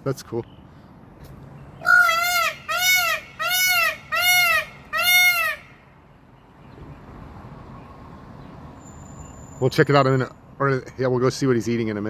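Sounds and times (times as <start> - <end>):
peafowl calling: 1.8 - 5.9.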